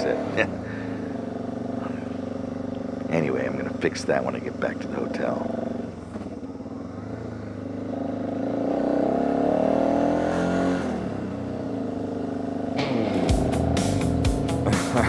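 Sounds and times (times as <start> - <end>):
motorcycle engine accelerating: 0.0 - 15.0
sharp beats: 12.8 - 15.0.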